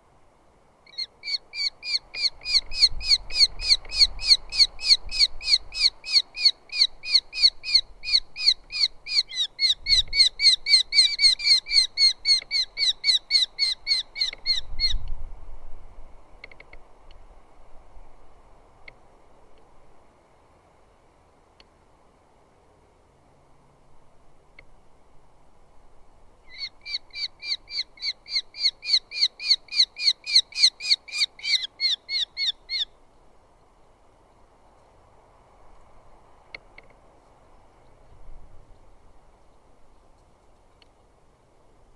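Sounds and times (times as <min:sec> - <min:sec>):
bird giving sharp repeated calls: 0:26.5 - 0:32.9.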